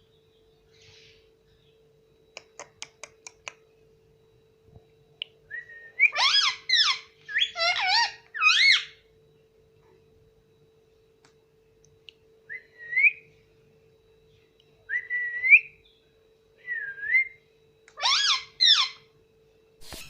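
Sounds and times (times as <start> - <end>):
faint steady hum: 0.0 - 20.0
parrot harsh calls: 6.1 - 9.0, 18.0 - 19.1.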